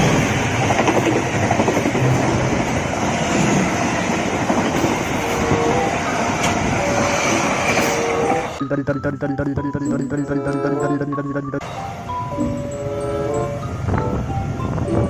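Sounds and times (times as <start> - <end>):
train wheels rumbling on rails: 0.0 - 8.6.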